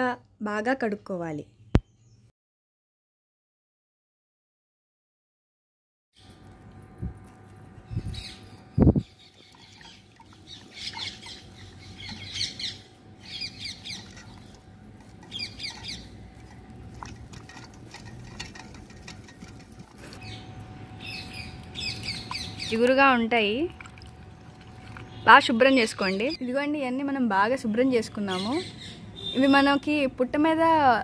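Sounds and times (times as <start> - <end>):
birds chirping: 7.8 - 30.0.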